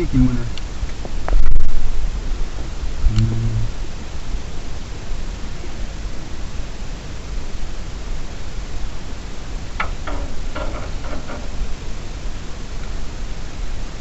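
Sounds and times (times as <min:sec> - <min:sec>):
low rumble: 0:00.0 - 0:05.2
steady rushing noise: 0:00.0 - 0:14.0.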